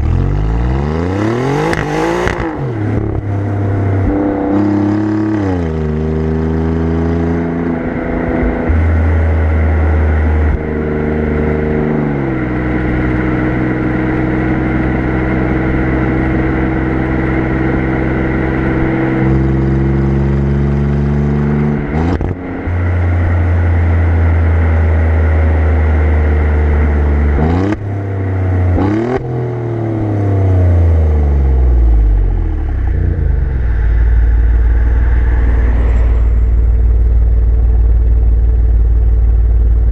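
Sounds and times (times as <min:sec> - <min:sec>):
car exhaust at cruising revs: 0:00.0 - 0:39.9
road and wind noise: 0:00.0 - 0:39.9.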